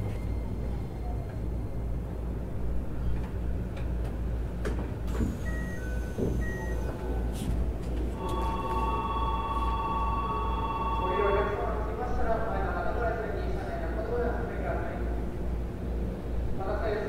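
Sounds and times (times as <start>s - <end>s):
low train equipment hum: 0.0s - 17.0s
high two-note electronic tone: 8.2s - 11.5s.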